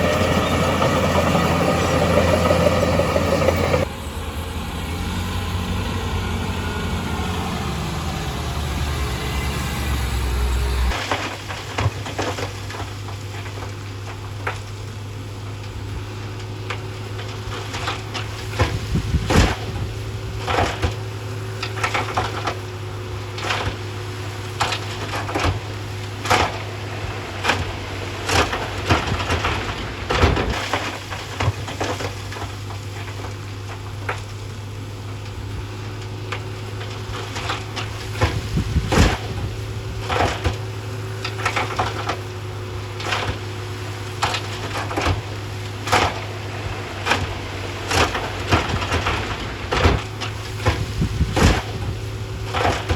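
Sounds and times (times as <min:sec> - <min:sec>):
heavy machinery engine drone: 0:00.0 - 0:52.9
rock being pushed and dumped: 0:10.9 - 0:52.9.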